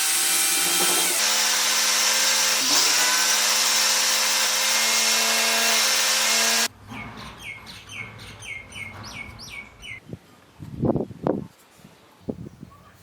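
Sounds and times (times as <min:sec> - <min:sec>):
electric power tool humming: 0:00.0 - 0:06.7
bird chirping: 0:06.9 - 0:10.0.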